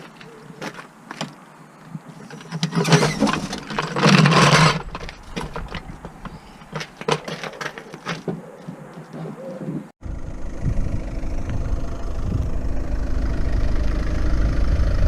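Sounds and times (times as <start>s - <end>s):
diesel engine cranking and idling: 10.0s - 15.0s.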